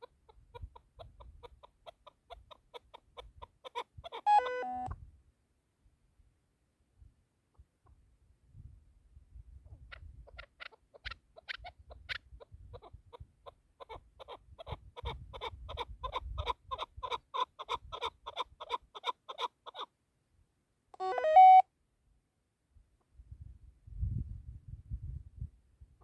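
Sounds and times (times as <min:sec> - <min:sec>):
partridge clucking calls: 0:00.0 - 0:04.9, 0:09.9 - 0:19.9
stepped electronic tones: 0:04.3 - 0:04.9.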